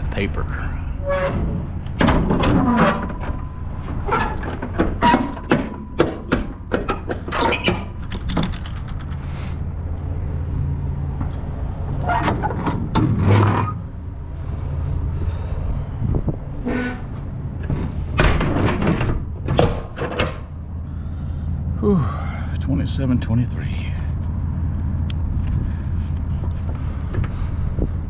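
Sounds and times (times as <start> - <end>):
truck engine idling: 0.0 - 13.0, 13.8 - 28.0
clicks clunks and knocks: 1.3 - 9.2, 17.6 - 20.6.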